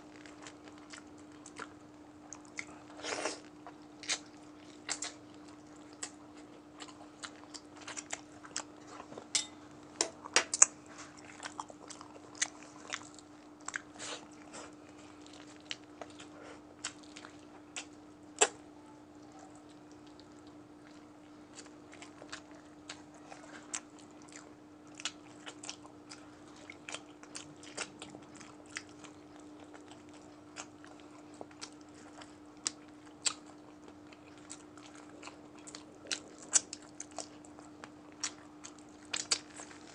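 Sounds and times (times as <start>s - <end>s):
wet chewing: 0.0s - 9.3s, 10.0s - 39.9s.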